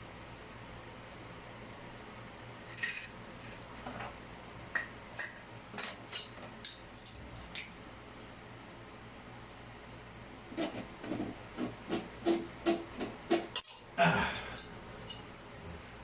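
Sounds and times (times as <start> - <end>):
steady low hum: 0.0 - 16.0
metal plumbing parts clinking: 2.7 - 3.6, 4.7 - 7.8, 13.5 - 15.3.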